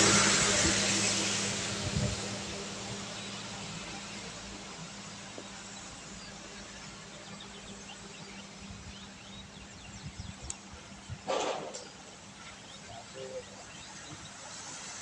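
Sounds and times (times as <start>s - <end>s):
rain on a wet road: 0.0s - 8.3s.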